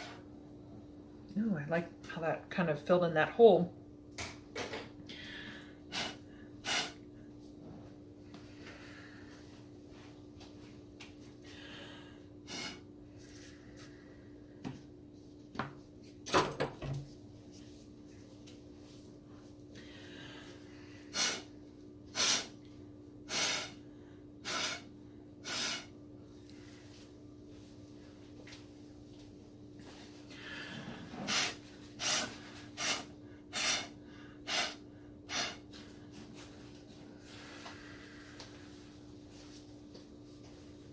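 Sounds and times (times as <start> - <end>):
steady low hum: 0.0 - 40.9
breath puffs through a straw: 5.9 - 7.0, 12.5 - 12.8, 21.1 - 21.5, 22.1 - 22.6, 23.3 - 23.8, 24.4 - 25.9, 30.6 - 35.6.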